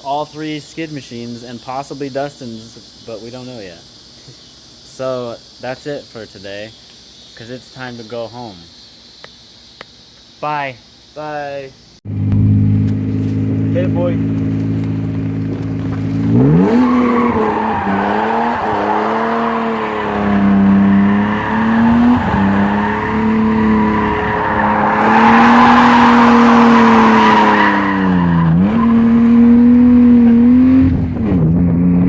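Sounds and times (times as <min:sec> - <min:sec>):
car engine revving hard: 0:12.1 - 0:32.0
tyres skidding and squealing: 0:12.1 - 0:32.0.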